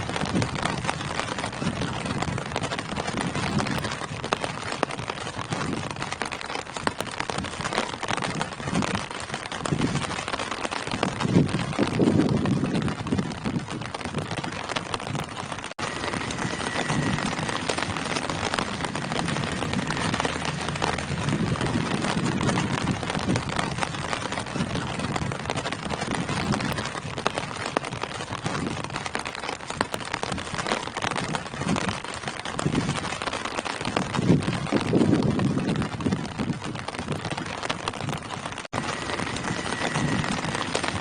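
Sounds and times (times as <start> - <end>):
rain falling on foliage: 0.0 - 41.0
low swells: 15.8 - 24.2.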